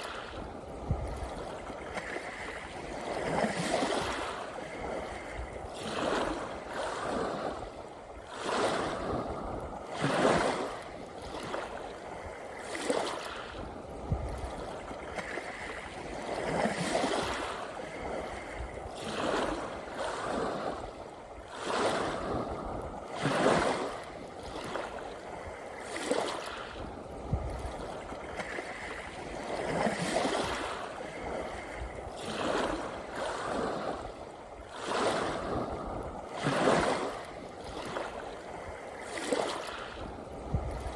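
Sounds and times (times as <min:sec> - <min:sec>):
small sea waves breaking: 0:00.0 - 0:40.9.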